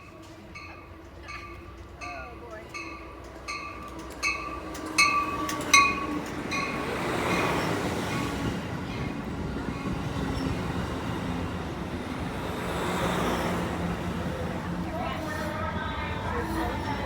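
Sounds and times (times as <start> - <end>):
train bell clanging: 0.0 - 9.1, 13.9 - 17.0
train wheels rumbling on rail: 0.0 - 17.0.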